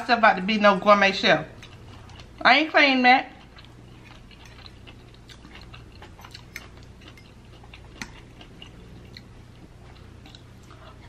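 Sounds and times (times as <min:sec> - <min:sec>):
close chewing: 0:01.6 - 0:02.4, 0:03.3 - 0:11.0.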